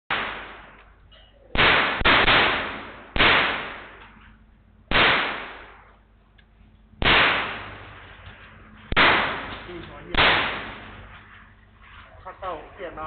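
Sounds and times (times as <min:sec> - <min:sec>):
gunshots echoing: 0:00.1 - 0:04.2, 0:04.9 - 0:06.1, 0:07.0 - 0:11.6.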